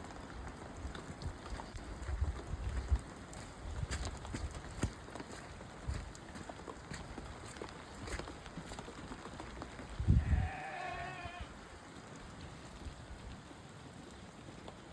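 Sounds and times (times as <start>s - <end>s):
scattered ticks and crackles: 0.0s - 14.9s
sheep or goat bleating: 10.1s - 11.6s.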